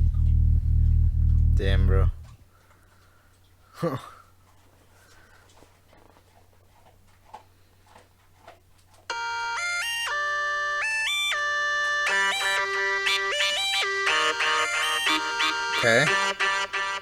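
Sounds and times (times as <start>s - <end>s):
buzzy looped vocal melody: 13.9s - 17.0s.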